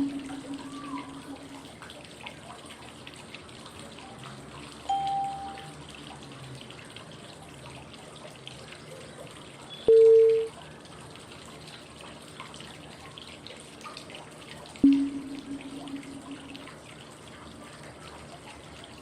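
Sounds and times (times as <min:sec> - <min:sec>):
short cue tone: 0:00.0 - 0:01.6, 0:04.9 - 0:05.7, 0:09.8 - 0:10.5, 0:14.8 - 0:16.7
flowing water white noise: 0:00.0 - 0:07.2, 0:14.8 - 0:17.8.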